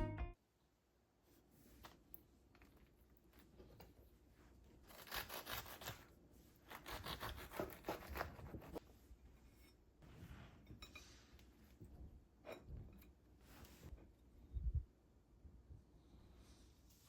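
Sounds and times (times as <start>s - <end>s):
rustling and scraping handling: 7.8s - 14.2s.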